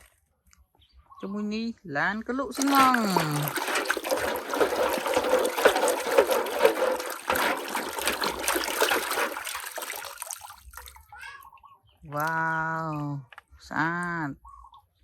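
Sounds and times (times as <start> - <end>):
water splashing over toy vehicle: 2.5 - 11.1
small gurgles and clicks: 2.6 - 11.1.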